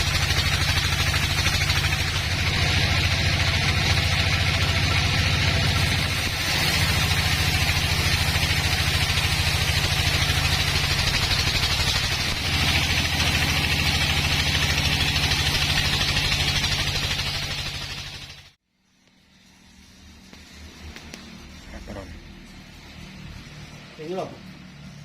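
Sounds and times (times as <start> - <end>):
engine idling: 0.0 - 18.6.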